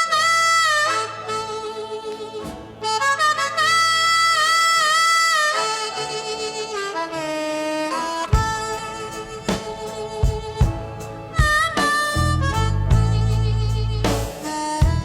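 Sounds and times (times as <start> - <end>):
backing band: 0.0 - 15.0
wind instrument blues melody: 0.0 - 15.0
drum beats: 8.2 - 15.0.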